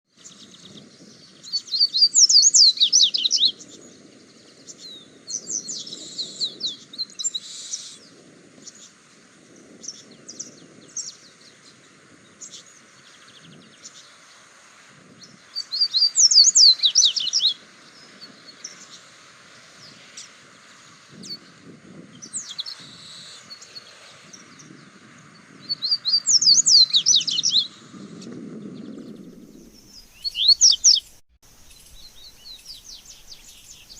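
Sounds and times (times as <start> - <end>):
bird twittering song: 0.1 - 14.5, 15.1 - 33.9
soft bird chirps: 0.2 - 9.0, 15.2 - 21.6, 22.2 - 33.9.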